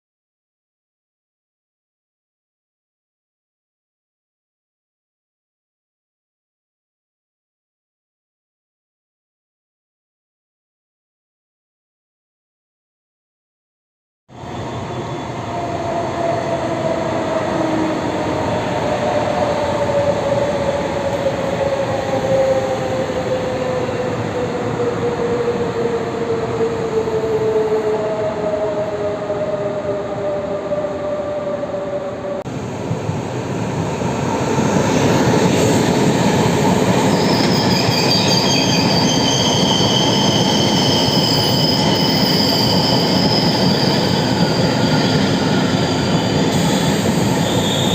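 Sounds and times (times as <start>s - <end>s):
train whine slowing: 14.3s - 47.9s
train wheel and brake squealing: 14.4s - 23.0s, 35.0s - 47.9s.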